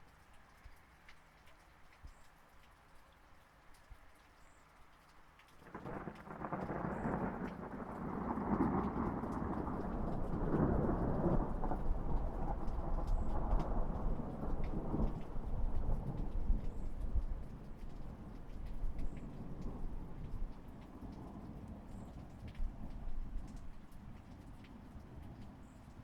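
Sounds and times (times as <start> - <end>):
raindrop ticks: 0.0 - 26.0
steady rain: 0.0 - 26.0
rolling thunder: 5.7 - 21.9.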